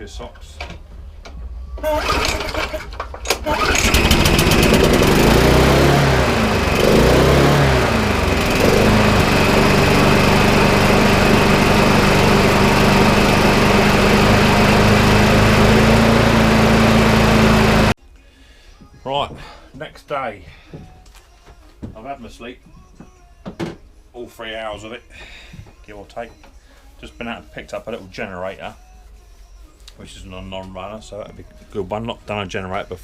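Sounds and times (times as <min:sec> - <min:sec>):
lawnmower engine pull-started: 0:01.8 - 0:18.0
lawnmower engine running: 0:01.8 - 0:18.0.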